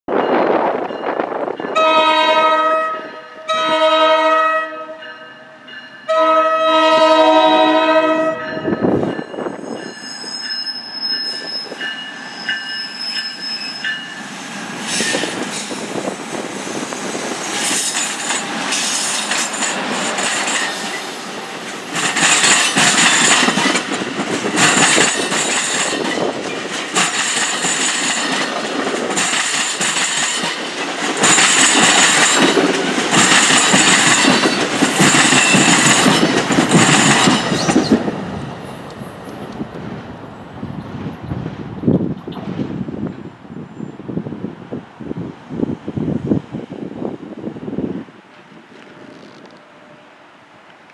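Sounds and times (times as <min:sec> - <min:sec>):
locomotive horn blasts: 0:01.8 - 0:08.8
train wheels on rails: 0:05.0 - 0:50.9
high wheel squeal: 0:09.4 - 0:15.4.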